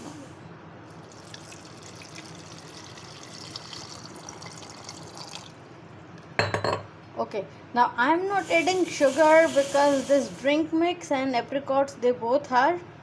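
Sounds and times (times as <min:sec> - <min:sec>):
water pouring into blender jar: 0:01.0 - 0:05.6.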